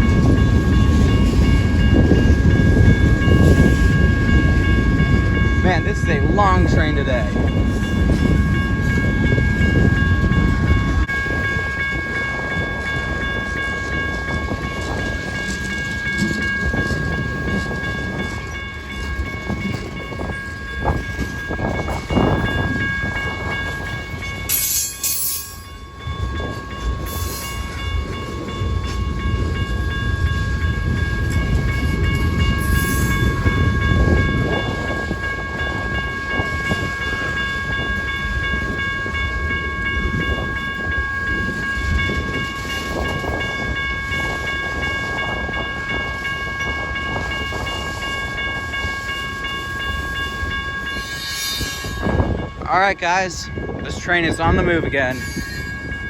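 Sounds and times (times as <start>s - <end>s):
freight train cars rolling: 0.0s - 56.0s
high steady tones: 0.0s - 56.0s.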